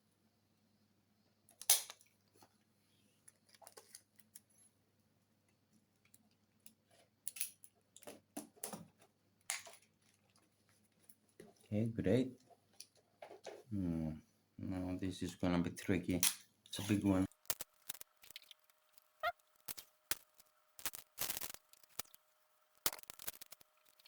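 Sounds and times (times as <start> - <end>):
rustles clicks and scrapes: 16.9 - 24.0.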